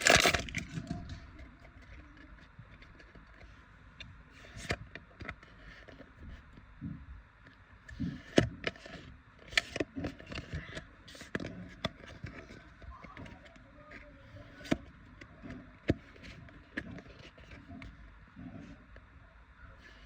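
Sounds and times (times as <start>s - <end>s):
trading cards rustling: 0.0s - 0.8s.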